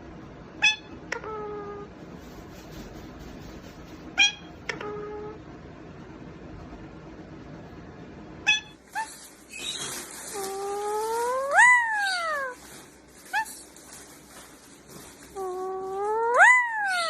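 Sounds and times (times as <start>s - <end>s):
parrot chirps: 0.6s - 1.8s, 4.0s - 5.4s, 8.4s - 12.6s, 15.4s - 17.0s
parrot imitating cat meow: 0.6s - 1.9s, 4.1s - 5.4s, 8.4s - 9.1s, 10.4s - 12.6s, 15.4s - 17.0s.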